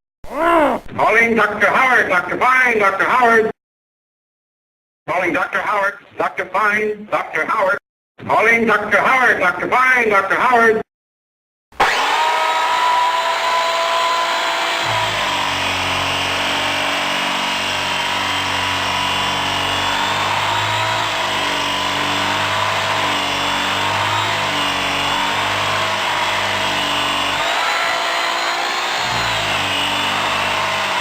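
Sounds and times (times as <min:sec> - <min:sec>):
power tool motor whine: 0:11.8 - 0:31.0.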